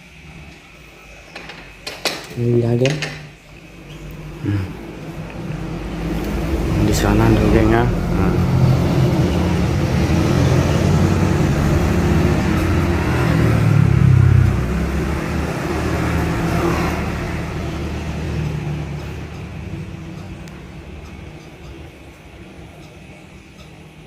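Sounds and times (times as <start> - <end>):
motor vehicle engine running: 3.6 - 24.0.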